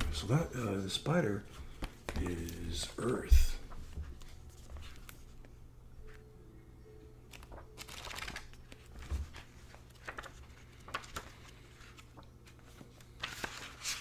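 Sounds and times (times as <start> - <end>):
cards and paper rustling: 0.0 - 6.3, 7.3 - 14.0
faint low hum: 0.0 - 14.0.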